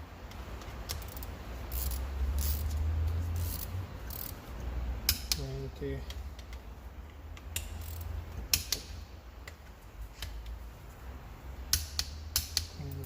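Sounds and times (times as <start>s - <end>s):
torque wrench clicking: 0.3s - 2.8s, 3.4s - 4.4s, 7.4s - 9.6s.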